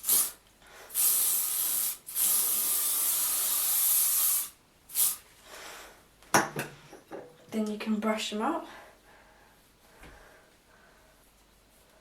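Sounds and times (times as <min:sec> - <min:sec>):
aerosol can spraying: 0:00.0 - 0:05.2.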